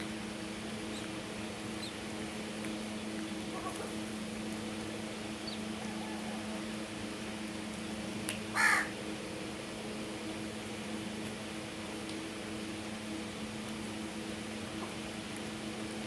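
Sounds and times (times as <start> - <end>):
steady low hum: 0.0 - 16.0
crow cawing: 8.6 - 8.9.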